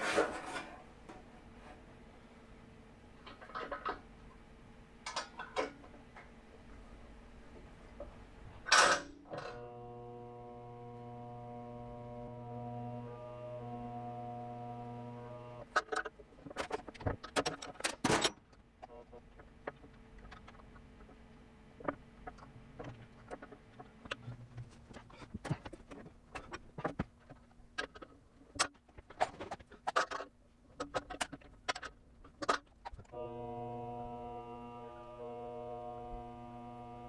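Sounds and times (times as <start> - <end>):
faint steady hum: 0.1 - 17.9, 32.3 - 37.0
droning tone with low buzz: 9.4 - 15.8, 33.1 - 37.0.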